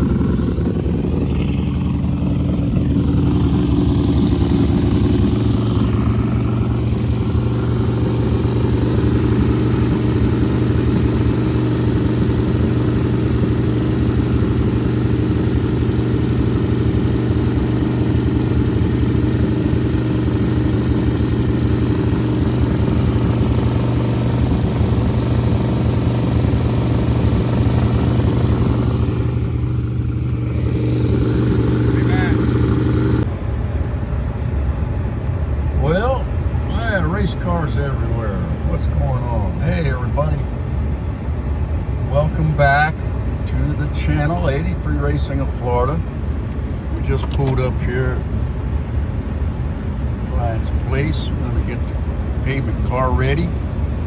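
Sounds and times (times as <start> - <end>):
road noise: 0.0 - 54.0
vehicle engine running: 0.0 - 54.0.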